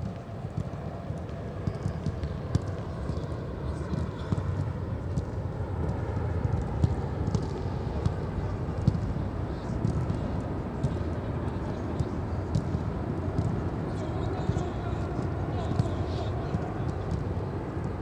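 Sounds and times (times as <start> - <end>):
footballs being kicked: 3.9 - 9.1, 9.8 - 18.0.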